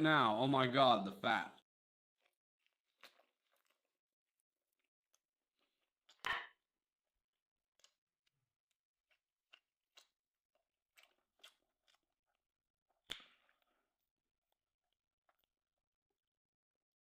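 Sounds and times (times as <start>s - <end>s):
chewing and crunching food: 2.2s - 6.2s, 7.6s - 16.2s.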